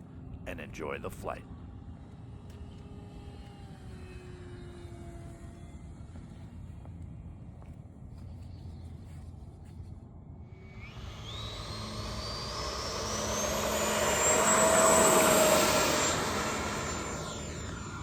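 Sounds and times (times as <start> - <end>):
electric jet fan whine: 1.5 - 18.0.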